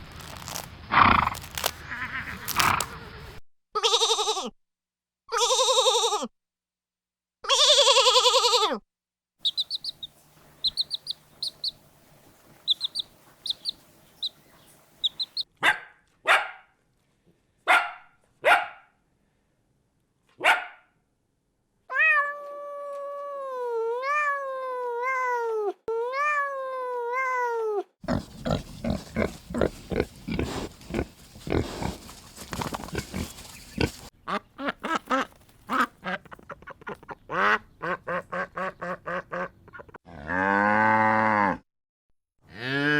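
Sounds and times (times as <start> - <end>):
dense noisy animal calling: 9.4 - 11.8, 15.0 - 15.5, 28.1 - 34.1
high animal chirps: 9.4 - 11.8, 12.5 - 15.5
rapid short animal calls: 9.4 - 11.8, 12.7 - 14.4, 15.0 - 15.4
wavering animal call: 9.4 - 11.8.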